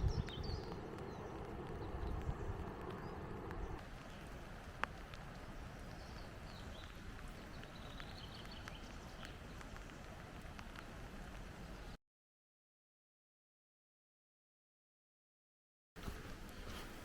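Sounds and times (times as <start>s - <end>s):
low rumble: 0.0s - 4.0s
light ticks: 0.0s - 11.4s.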